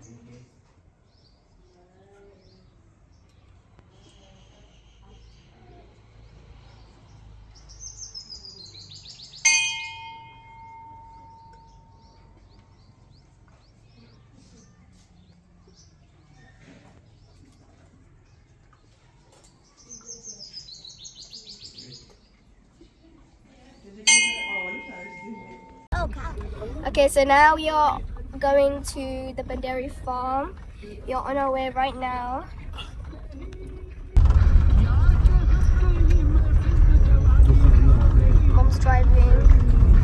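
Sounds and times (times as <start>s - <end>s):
metal temple bell clang: 9.4s - 12.2s, 24.1s - 26.0s.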